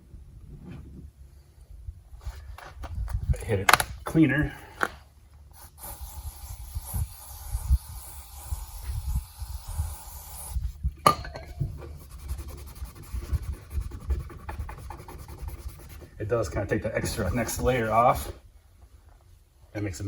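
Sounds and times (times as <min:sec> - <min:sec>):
rubbing and scraping residue: 0:11.5 - 0:18.4.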